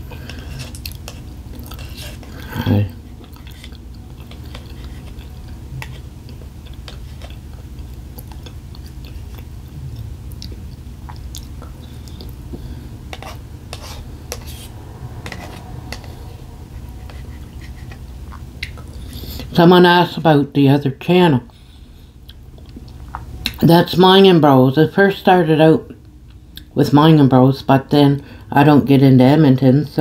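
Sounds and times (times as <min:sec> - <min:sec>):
steady low hum: 0:00.0 - 0:30.0
person chewing food: 0:00.1 - 0:19.5, 0:21.5 - 0:23.6.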